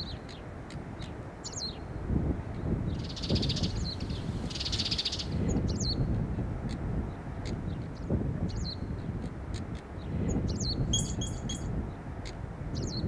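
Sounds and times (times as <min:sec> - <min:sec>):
small birds chirping: 0:00.0 - 0:01.9, 0:02.6 - 0:06.1, 0:10.0 - 0:12.0
low wind rumble: 0:00.0 - 0:13.0.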